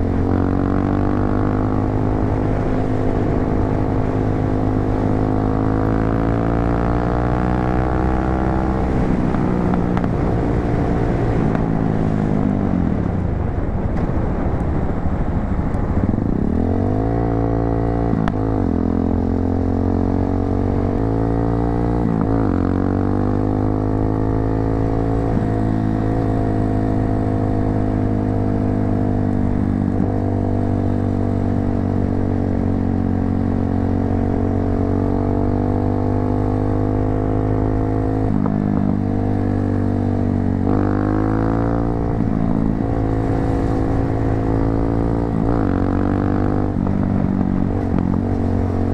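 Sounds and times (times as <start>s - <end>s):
motorcycle engine with gear changes: 15.7s - 48.9s.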